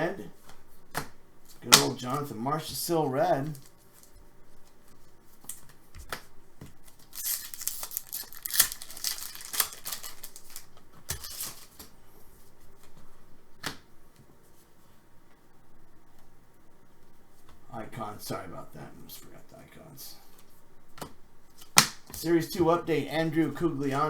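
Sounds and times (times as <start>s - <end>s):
trading cards rustling and clicking: 3.4s - 11.9s.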